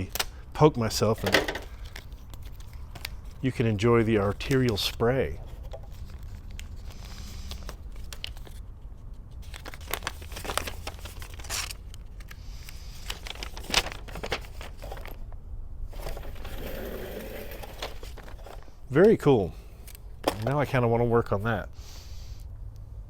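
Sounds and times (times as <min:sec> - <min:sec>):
packaging crinkling and tearing: 0:05.9 - 0:08.8, 0:09.4 - 0:15.2, 0:16.0 - 0:18.7.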